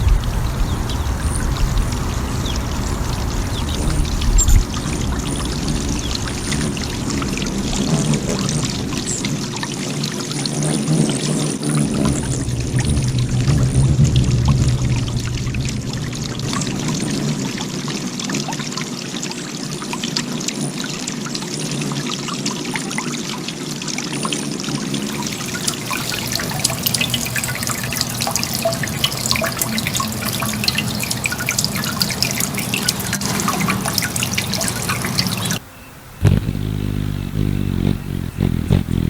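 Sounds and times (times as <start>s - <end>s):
water trickling and splashing: 0.0s - 36.6s
water dripping: 0.0s - 39.0s
low steady hum: 11.9s - 18.9s, 25.1s - 39.0s.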